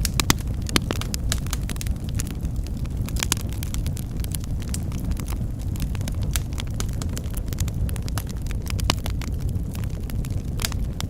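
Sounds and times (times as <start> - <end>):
sharp fire pop: 0.0 - 7.1
wood fire crackling: 0.0 - 11.0.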